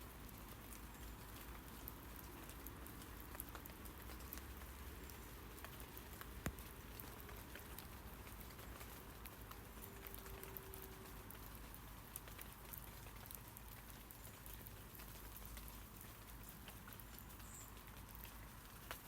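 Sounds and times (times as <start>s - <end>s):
rain falling on leaves: 0.0s - 19.0s.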